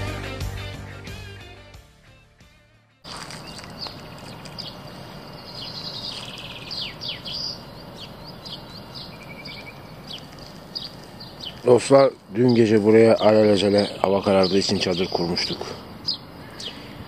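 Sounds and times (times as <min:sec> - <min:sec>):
songbirds singing and chirping: 0:03.1 - 0:17.0
steady background noise: 0:03.1 - 0:17.0.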